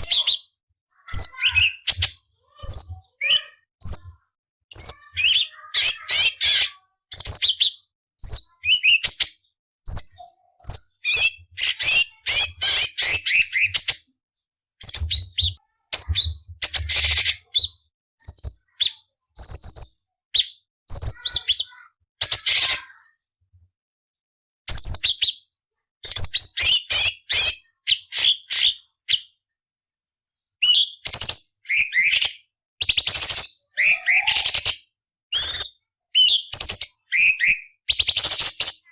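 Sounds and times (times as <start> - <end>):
bird singing scratchy chatters: 0.0 - 14.1, 30.6 - 38.9.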